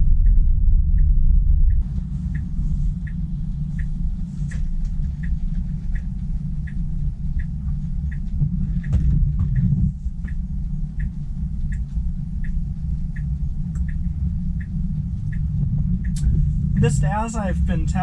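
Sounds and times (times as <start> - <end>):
road noise inside car: 0.0 - 18.0
turn signal ticking: 0.2 - 18.0
faint rain hiss: 16.2 - 18.0.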